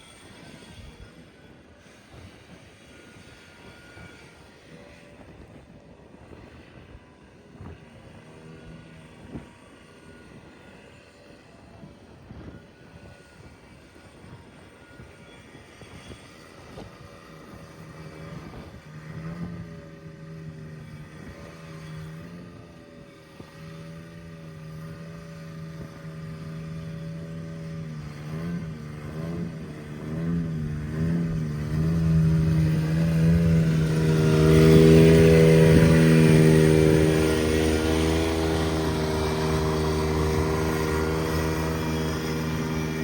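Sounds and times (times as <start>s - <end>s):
garden tractor engine running: 17.1s - 43.0s.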